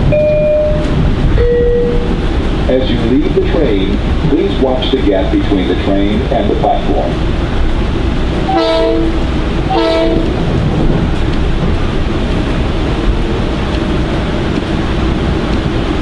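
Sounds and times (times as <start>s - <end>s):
train running noise inside car: 0.0s - 16.0s
train horn blasts: 8.5s - 10.4s.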